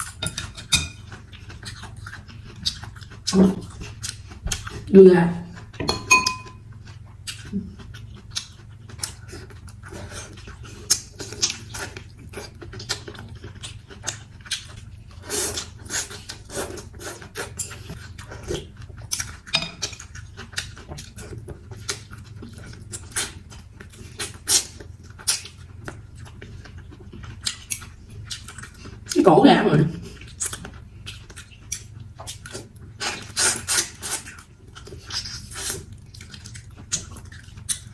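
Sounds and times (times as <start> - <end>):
utensils clinking against bowl: 0.0 - 1.0, 5.8 - 6.6
wet chewing and smacking: 0.0 - 4.9, 5.5 - 29.2, 30.0 - 37.9.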